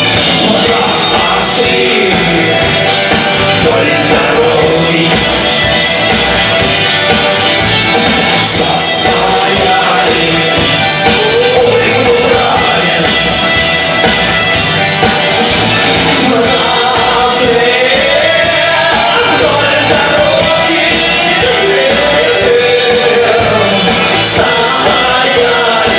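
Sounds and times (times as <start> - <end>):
song with band and singing: 0.0 - 25.9.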